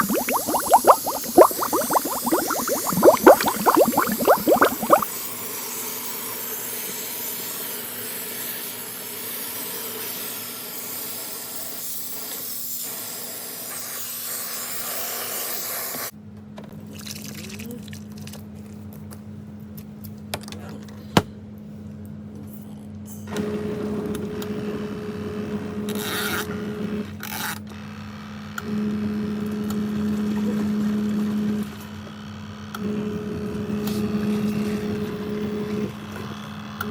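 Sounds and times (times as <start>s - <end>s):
shower water spraying into tub: 0.0s - 5.0s.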